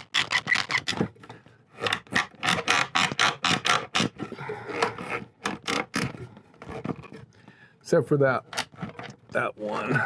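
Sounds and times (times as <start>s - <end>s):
wooden chair spindles rattling: 0.0s - 1.1s.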